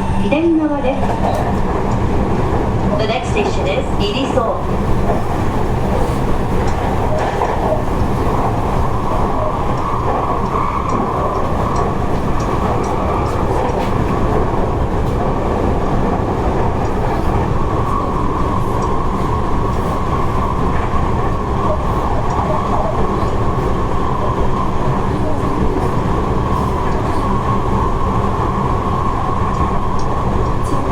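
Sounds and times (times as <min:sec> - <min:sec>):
train wheels rumbling on rail: 0:00.0 - 0:30.9.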